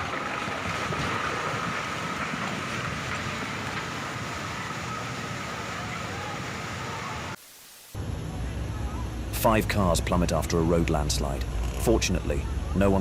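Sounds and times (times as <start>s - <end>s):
rushing roar of landslide: 0.0s - 7.4s.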